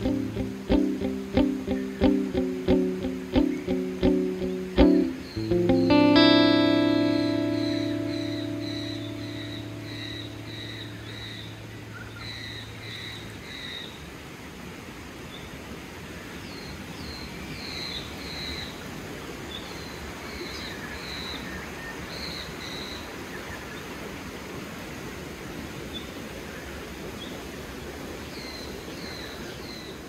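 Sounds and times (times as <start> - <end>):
birds chirping: 0.0 - 12.8.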